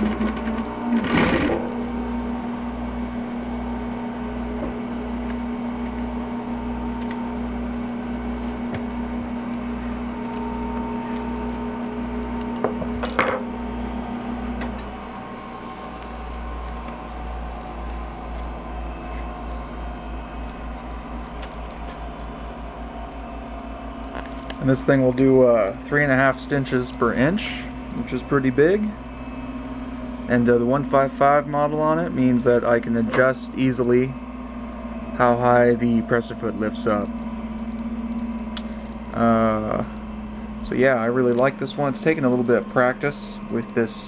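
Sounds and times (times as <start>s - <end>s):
low even throb: 0.0s - 44.0s
sewing machine motor hum: 0.0s - 44.0s.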